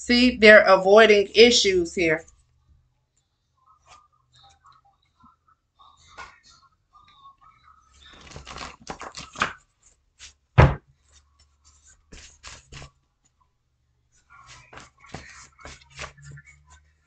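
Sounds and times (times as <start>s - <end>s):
cards shuffling: 8.0s - 10.4s, 11.6s - 13.0s, 14.4s - 16.7s
loud thump: 10.6s - 10.8s.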